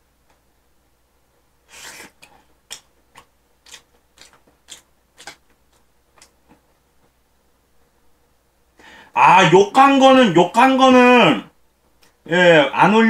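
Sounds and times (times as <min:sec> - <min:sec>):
person chewing: 0:01.7 - 0:06.6.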